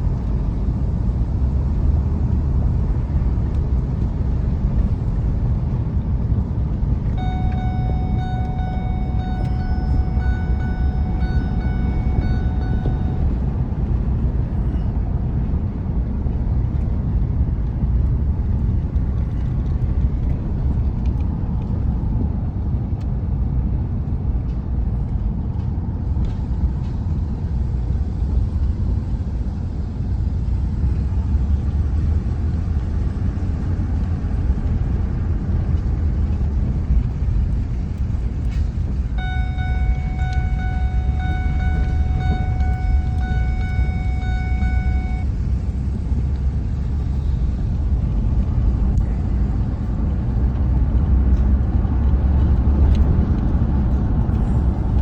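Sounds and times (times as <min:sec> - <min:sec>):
truck engine and road rumble: 0:00.0 - 0:55.0
steady high tone: 0:07.2 - 0:13.8, 0:39.2 - 0:45.3.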